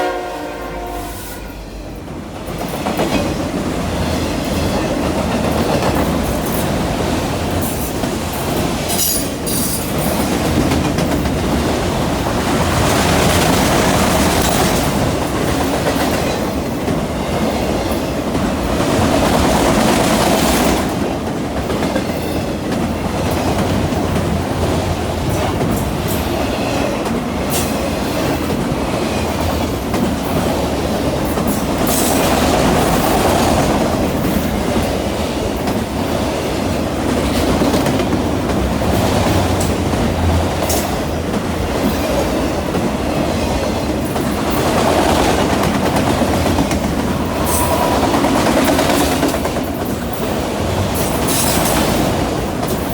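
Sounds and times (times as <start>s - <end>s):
freight train rumble: 0.0s - 52.9s
wheels clickety-clack over rail joints: 1.8s - 52.9s.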